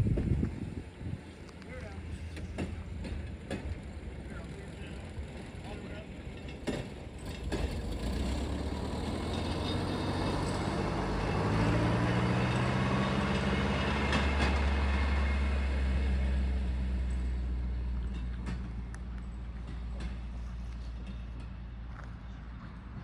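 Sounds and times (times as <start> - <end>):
rail vehicle engine drone: 0.0 - 23.0.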